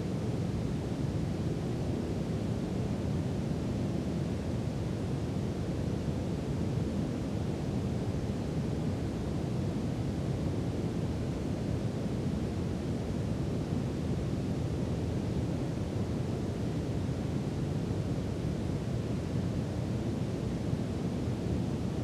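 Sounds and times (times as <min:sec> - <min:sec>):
brown noise hiss: 0:00.0 - 0:22.0.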